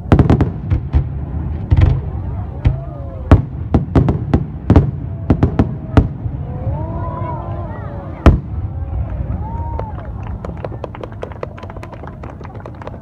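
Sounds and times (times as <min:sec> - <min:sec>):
fireworks bangs: 0:00.0 - 0:06.5, 0:08.1 - 0:11.9
continuous low rumble: 0:00.0 - 0:13.0.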